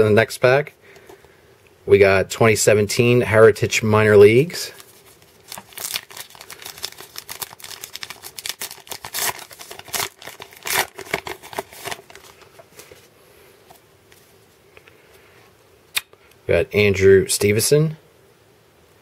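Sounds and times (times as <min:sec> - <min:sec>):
wrapper tearing and crinkling: 0:04.7 - 0:13.0.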